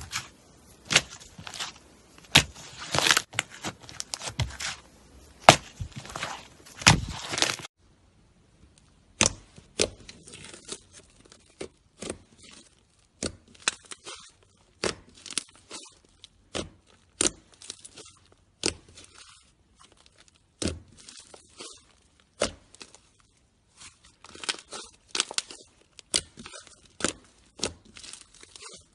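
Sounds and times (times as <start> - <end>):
slime squishing: 0.0 - 7.7, 8.9 - 28.9.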